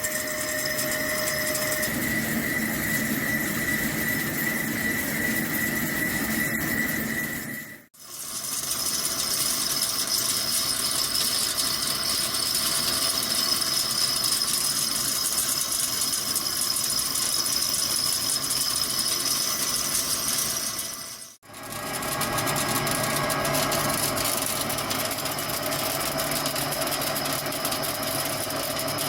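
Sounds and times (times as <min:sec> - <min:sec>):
high whine: 0:00.0 - 0:07.9
lathe cutting steel: 0:00.0 - 0:29.0.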